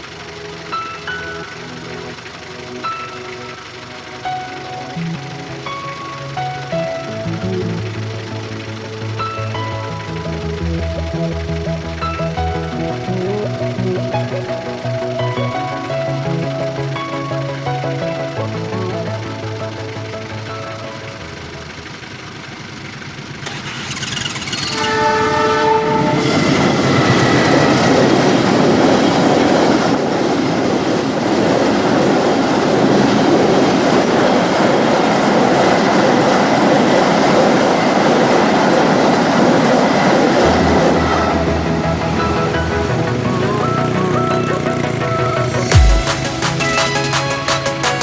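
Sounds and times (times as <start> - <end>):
train horn chord: 24.7 - 28.8
train passing at speed: 24.7 - 48.0.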